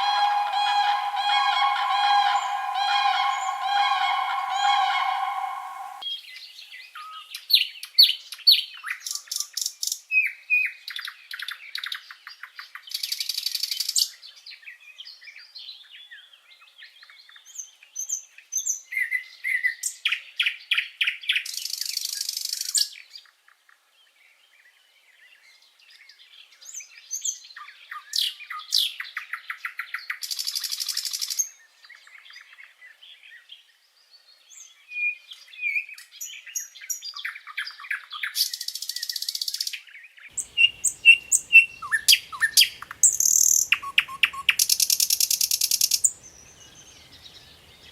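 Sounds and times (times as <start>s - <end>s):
songbirds chirping and trilling: 0.0s - 6.0s, 40.4s - 47.9s.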